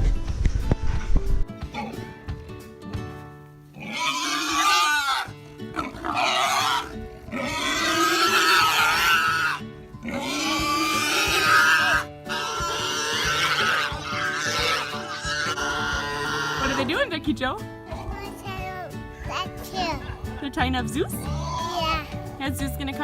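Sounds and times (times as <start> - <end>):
pig squealing: 3.8 - 17.1.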